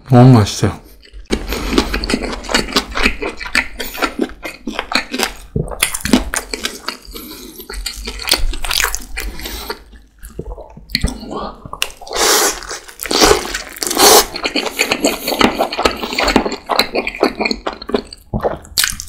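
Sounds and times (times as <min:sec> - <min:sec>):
close-miked chewing: 0:00.8 - 0:19.0
mouth clicks and smacks: 0:01.0 - 0:12.6, 0:13.6 - 0:19.0.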